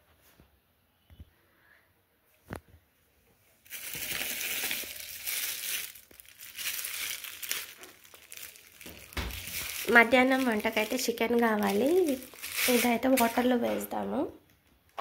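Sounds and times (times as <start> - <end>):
plastic bag crinkling: 3.6 - 13.9.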